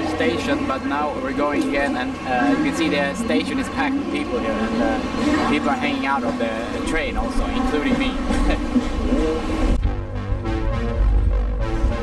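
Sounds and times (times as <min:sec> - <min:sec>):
strong steady bass: 0:09.7 - 0:12.0.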